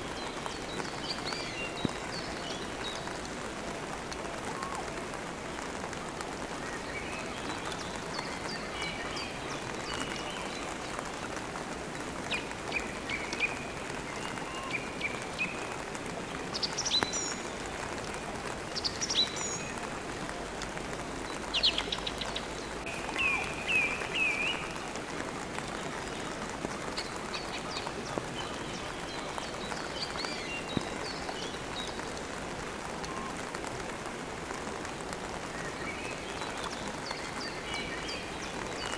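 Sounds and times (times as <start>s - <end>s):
steady rain falling: 0.0s - 38.9s
birds chirping: 21.2s - 32.2s.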